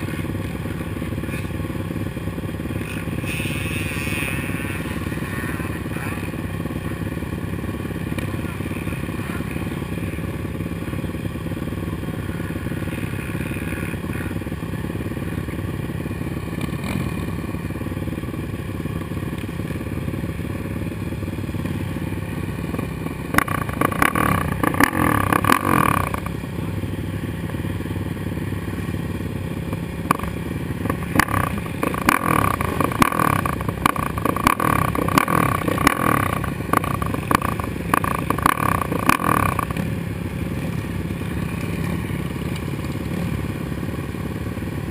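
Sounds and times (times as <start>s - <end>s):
quad engine running: 0.0s - 44.9s
sharp clacks: 30.9s - 39.9s.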